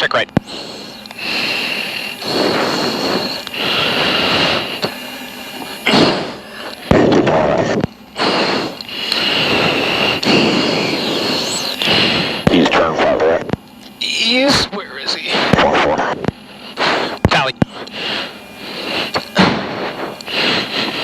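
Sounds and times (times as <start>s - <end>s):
heavy rapid breathing into mask: 0.4s - 12.5s, 16.4s - 21.0s.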